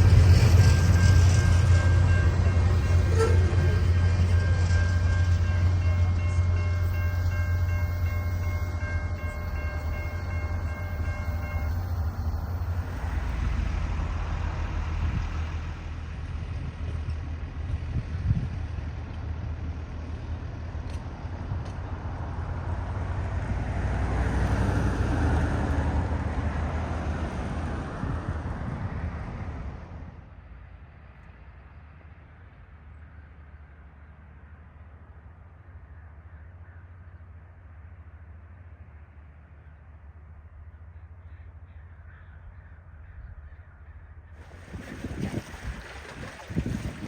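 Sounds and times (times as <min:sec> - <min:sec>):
heavy low engine hum: 0:00.0 - 0:30.8
train rumbling and rolling: 0:00.0 - 0:42.1, 0:42.8 - 0:47.0.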